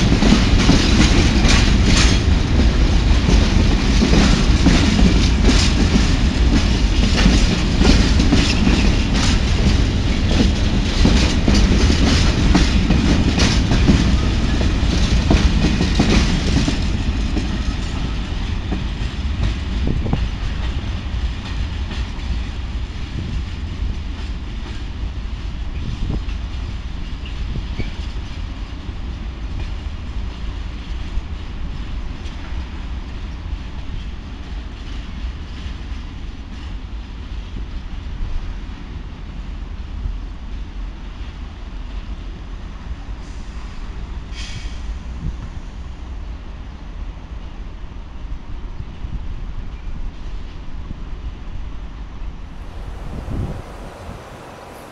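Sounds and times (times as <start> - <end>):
train wheels clattering over joints: 0.0 - 24.8.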